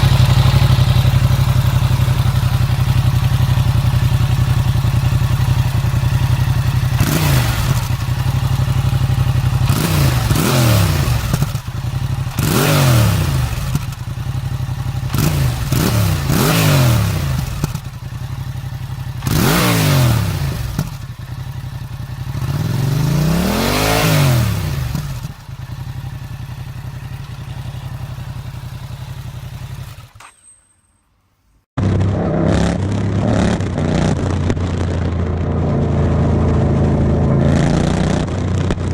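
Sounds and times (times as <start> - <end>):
another engine idling: 0.0 - 12.6
motorcycle engine idling and revving: 0.0 - 30.7, 31.7 - 38.9.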